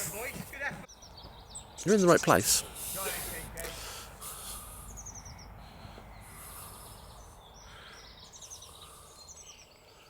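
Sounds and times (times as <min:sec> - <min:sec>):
small bird singing: 0:00.0 - 0:10.0.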